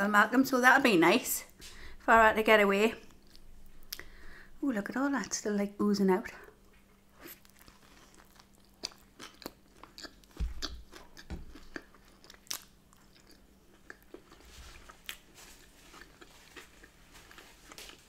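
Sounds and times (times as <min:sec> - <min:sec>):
person chewing: 0:03.1 - 0:04.1, 0:06.7 - 0:18.0.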